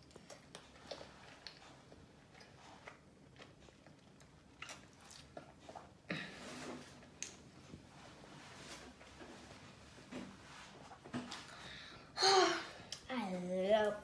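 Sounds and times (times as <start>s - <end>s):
chewing fried chicken: 0.0s - 6.1s.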